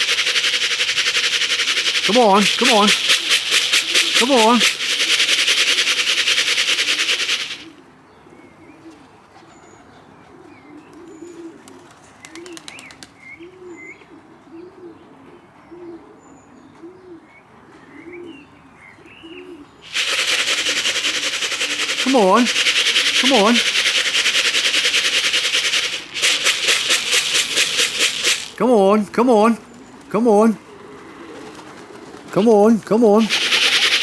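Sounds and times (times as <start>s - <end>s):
loud rapid rattle: 0.0s - 7.7s, 19.9s - 28.6s, 33.2s - 34.0s
pigeons cooing: 0.0s - 7.8s, 8.7s - 17.3s, 17.9s - 28.9s, 29.6s - 34.0s.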